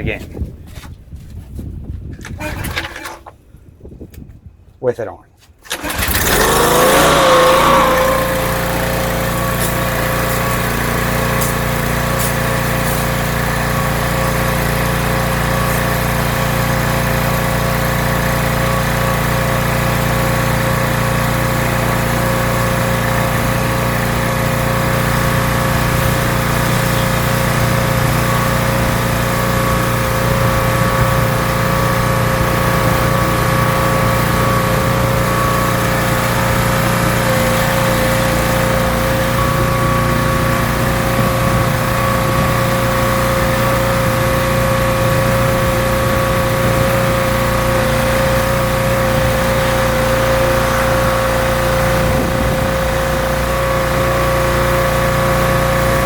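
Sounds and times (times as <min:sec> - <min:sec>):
pressure washer engine running: 0:02.4 - 0:03.2, 0:05.7 - 0:56.0.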